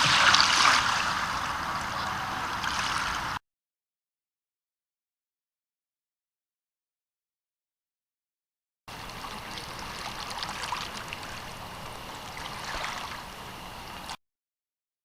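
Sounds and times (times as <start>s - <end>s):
river water flowing and lapping: 0.0s - 3.4s, 8.9s - 14.2s.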